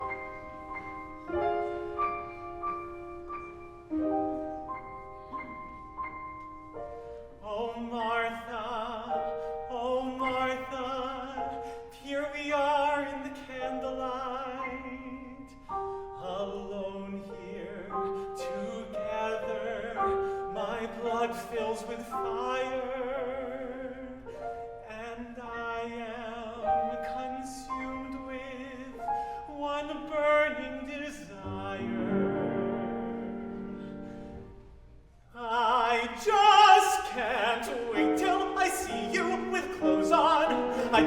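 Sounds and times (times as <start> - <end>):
piano playing: 0.0 - 41.0
person singing with vibrato: 35.3 - 41.0.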